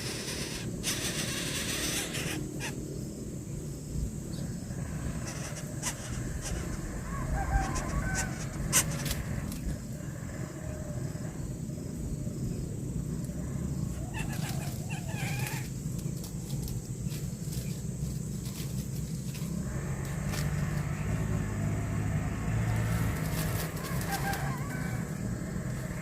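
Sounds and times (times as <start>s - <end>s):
bird rising and falling call: 0.0s - 2.9s, 5.1s - 10.4s, 13.8s - 16.0s, 19.7s - 26.0s
steady low rumble: 0.0s - 26.0s.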